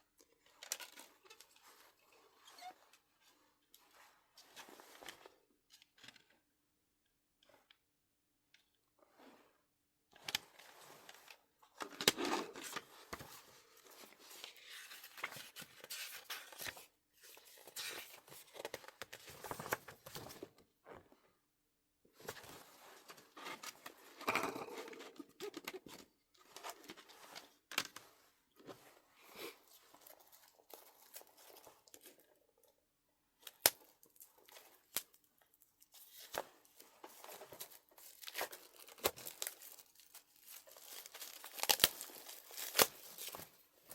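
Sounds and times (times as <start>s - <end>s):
plastic wrap and paper crinkling: 33.6s - 43.9s.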